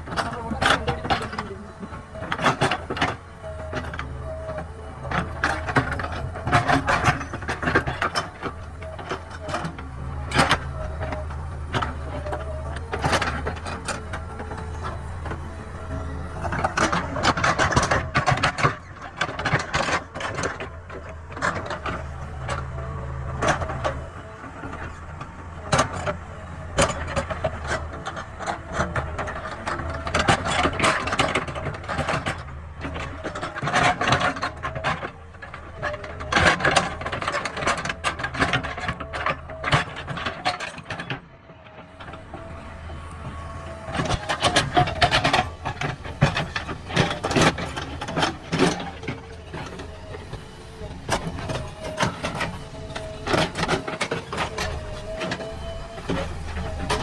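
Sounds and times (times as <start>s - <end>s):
diesel engine under load: 0.0s - 57.0s
bucket and linkage clanking: 44.0s - 57.0s.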